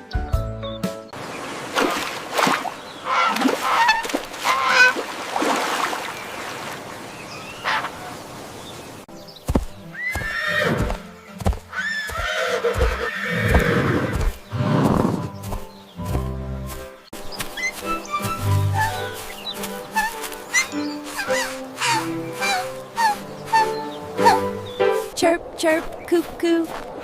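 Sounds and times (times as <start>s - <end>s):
horse whinnying: 10.0s - 11.0s, 11.7s - 15.3s.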